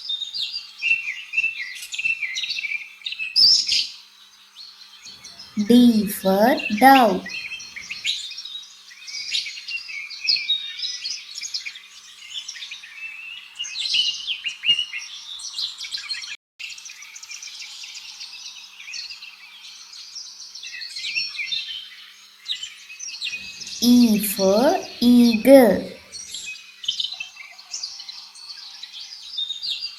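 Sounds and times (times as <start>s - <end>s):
small songbirds chirping: 16.8s - 25.0s.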